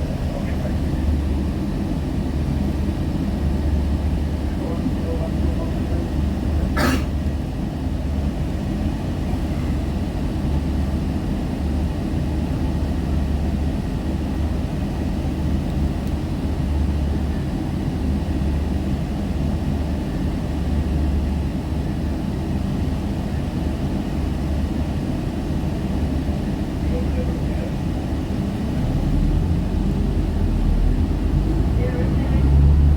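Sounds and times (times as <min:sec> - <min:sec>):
road rumble: 0:00.0 - 0:17.6, 0:26.0 - 0:32.9
diesel bus engine drone: 0:00.0 - 0:32.9.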